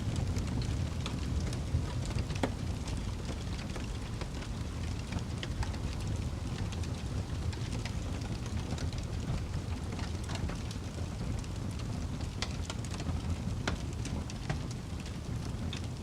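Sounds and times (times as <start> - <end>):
campfire rumble: 0.0 - 16.0
wood crackling and popping: 0.0 - 16.0.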